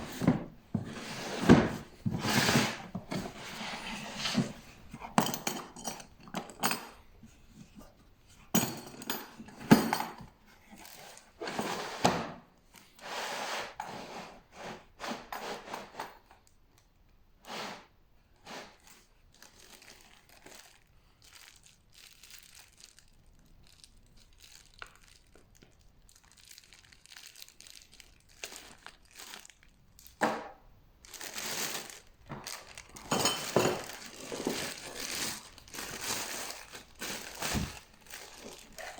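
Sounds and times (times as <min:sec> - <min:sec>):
packaging crinkling and rustling: 0:18.9 - 0:30.2, 0:31.0 - 0:38.9.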